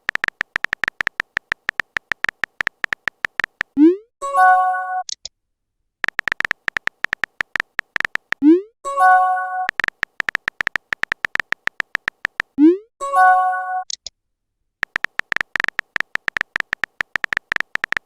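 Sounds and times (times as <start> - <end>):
keyboard tap clicks: 0.0 - 3.8, 6.0 - 8.4, 9.7 - 12.6, 14.8 - 18.0.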